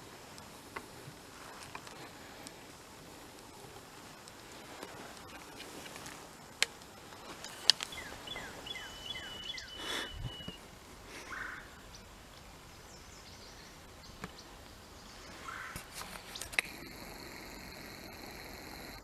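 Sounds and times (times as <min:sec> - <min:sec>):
wild turkey calling: 0:07.6 - 0:12.1, 0:15.2 - 0:18.0
sharp clicks: 0:15.8 - 0:19.0.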